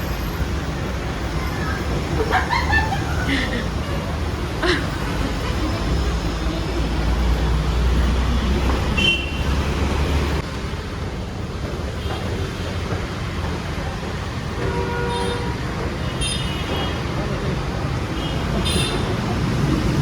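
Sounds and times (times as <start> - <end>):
traffic noise: 0.0 - 20.0
vehicle engine rumbling: 0.0 - 20.0
vehicle horn toot: 9.0 - 9.5, 14.7 - 17.0.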